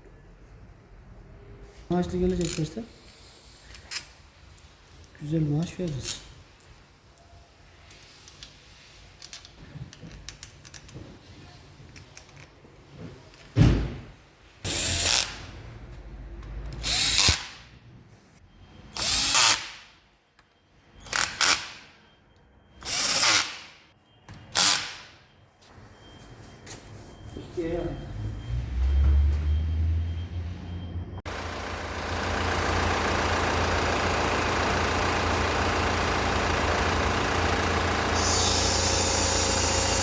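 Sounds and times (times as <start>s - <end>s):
handheld power tool running: 31.3s - 40.0s.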